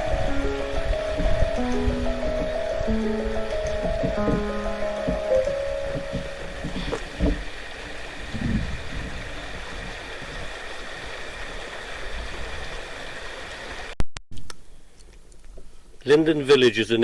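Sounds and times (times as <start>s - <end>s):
low bumps: 0.0s - 10.5s
running water rushing: 0.0s - 13.9s.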